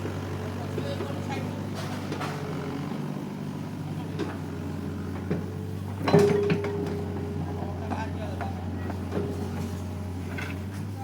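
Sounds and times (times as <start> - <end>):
excavator diesel engine running: 0.0 - 11.0
metal knocks and clunk: 5.3 - 7.3.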